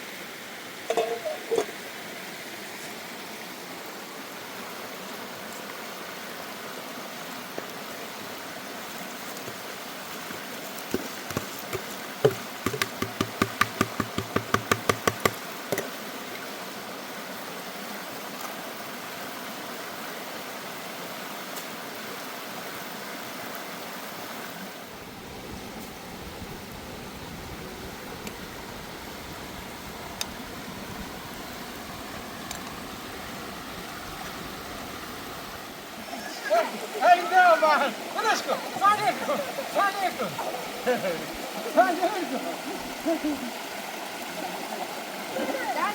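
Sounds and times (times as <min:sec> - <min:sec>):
sharp knocks: 0:10.9 - 0:15.8
steady rushing noise: 0:24.8 - 0:43.1.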